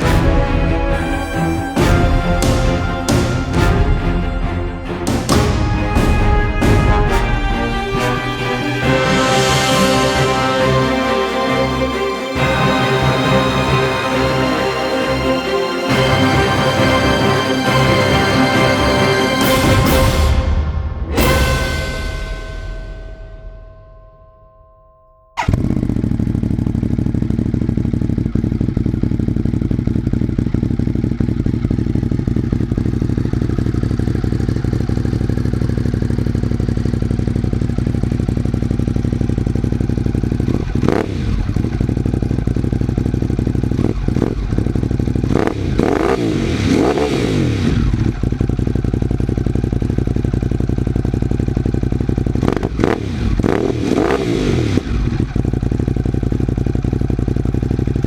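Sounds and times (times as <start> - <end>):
motorcycle throttle blips: 24.7 - 47.2
motorcycle engine idling: 25.4 - 58.0.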